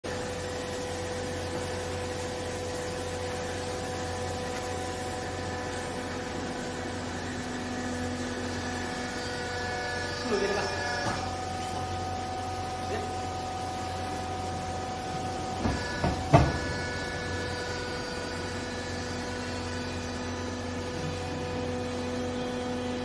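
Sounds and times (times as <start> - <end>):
hydraulic pump hum and whine: 0.0 - 23.0
sharp knocks: 15.6 - 16.8.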